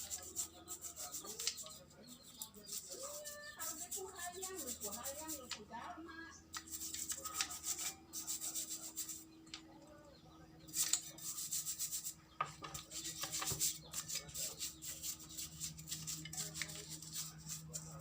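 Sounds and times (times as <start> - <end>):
rubbing strokes: 0.0 - 5.5, 6.6 - 9.2, 10.7 - 18.0.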